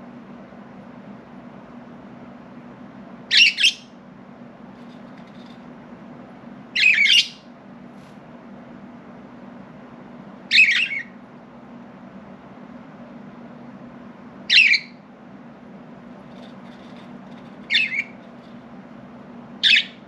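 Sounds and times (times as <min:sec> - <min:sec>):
steady low hum: 0:00.0 - 0:20.0
budgerigar squawking: 0:06.8 - 0:07.4, 0:10.5 - 0:11.1, 0:17.7 - 0:18.2, 0:19.6 - 0:20.0.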